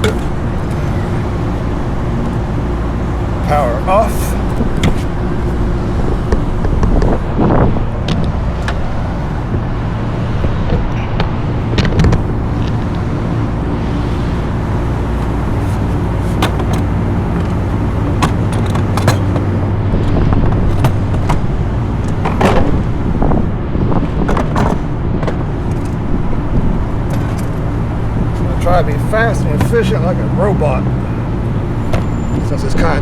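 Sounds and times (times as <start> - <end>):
sharp clicks and knocks: 0.0 - 2.7, 4.4 - 5.6, 15.1 - 22.8, 24.2 - 26.0
low mechanical drone: 0.0 - 33.0.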